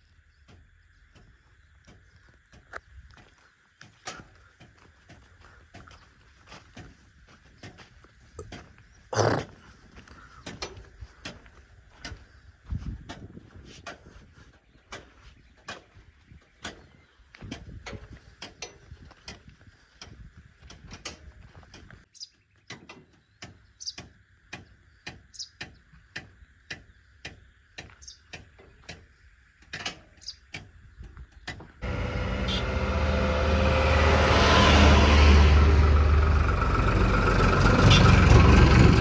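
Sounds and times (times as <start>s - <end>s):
diesel machine engine running: 31.8s - 39.0s.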